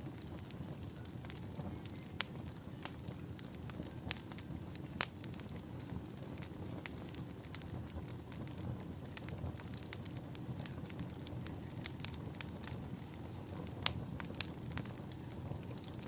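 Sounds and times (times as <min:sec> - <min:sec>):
fireplace crackling and popping: 0:00.0 - 0:16.0.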